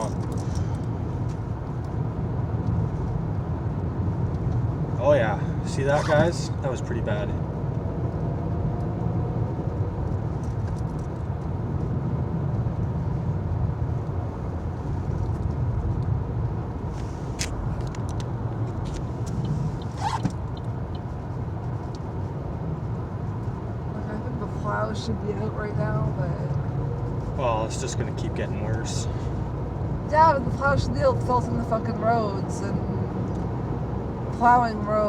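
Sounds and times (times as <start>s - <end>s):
engine and tyre rumble: 0.0s - 35.0s.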